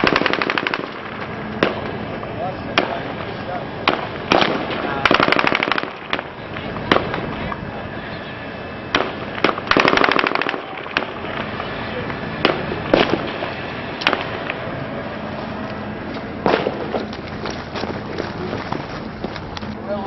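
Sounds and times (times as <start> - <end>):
automatic gunfire burst: 0.0 - 1.8, 3.9 - 6.3, 9.0 - 11.2
single gunshots: 3.8 - 6.3, 8.9 - 11.2, 12.4 - 13.4, 16.4 - 17.0.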